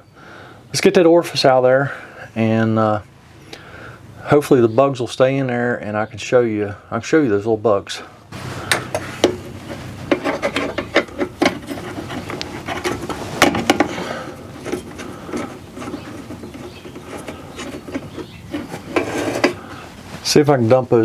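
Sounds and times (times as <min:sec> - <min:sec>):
metal clicks and scraping: 0:08.4 - 0:19.8.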